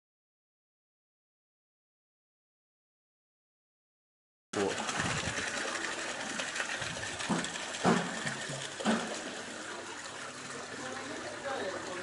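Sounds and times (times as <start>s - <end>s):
washing machine churning: 4.6s - 12.0s
machine knocks: 7.3s - 9.2s.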